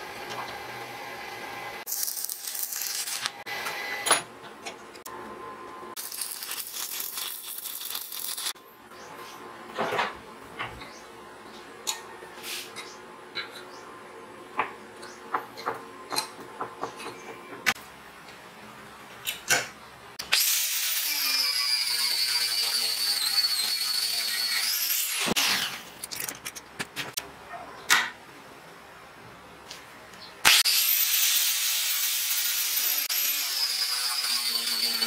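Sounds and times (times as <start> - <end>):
welding arc crackle: 1.9 - 3.4, 6.0 - 8.6.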